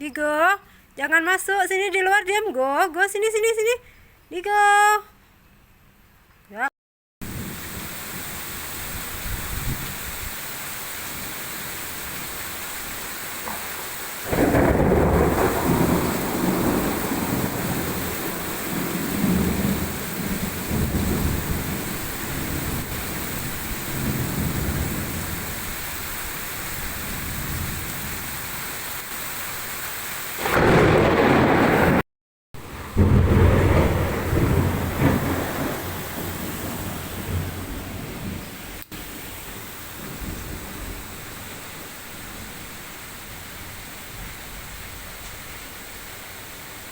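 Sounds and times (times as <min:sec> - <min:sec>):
heavy rain falling: 0:07.2 - 0:32.0, 0:32.6 - 0:46.9
loud thunder rumbling: 0:13.6 - 0:25.7, 0:30.4 - 0:32.0, 0:32.6 - 0:38.8, 0:39.9 - 0:41.6.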